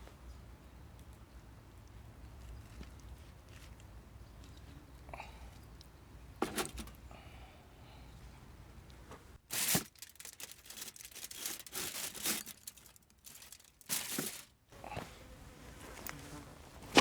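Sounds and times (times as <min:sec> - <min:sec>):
crinkling and tearing: 0:09.4 - 0:14.6.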